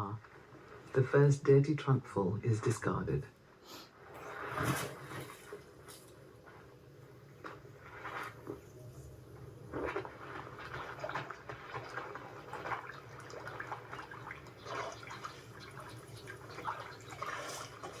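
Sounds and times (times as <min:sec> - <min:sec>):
low steady hum: 0:00.0 - 0:18.0
water splashing and dripping: 0:07.4 - 0:18.0.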